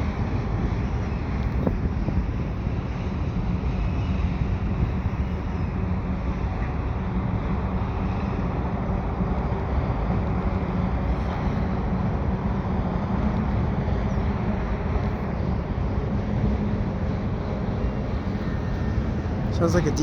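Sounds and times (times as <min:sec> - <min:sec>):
train wheels rumbling on rail: 0:00.0 - 0:20.0
wind buffeting microphone: 0:00.0 - 0:20.0.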